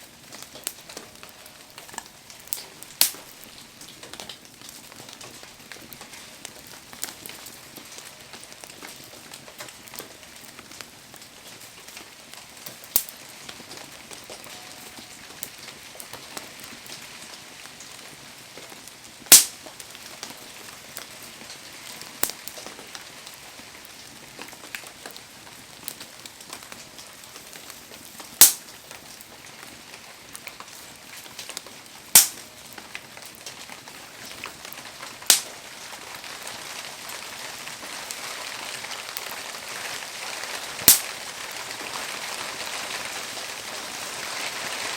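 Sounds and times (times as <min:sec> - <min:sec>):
burning wood popping: 0:00.0 - 0:44.9
rain hissing: 0:33.9 - 0:44.9.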